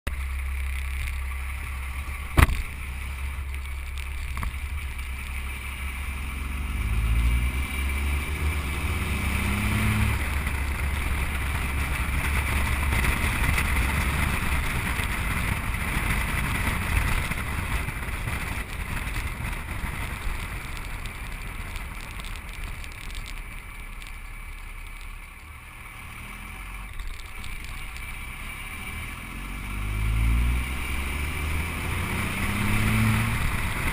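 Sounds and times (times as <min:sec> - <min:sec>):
diesel truck engine revving: 0:00.1 - 0:17.7, 0:25.7 - 0:33.9.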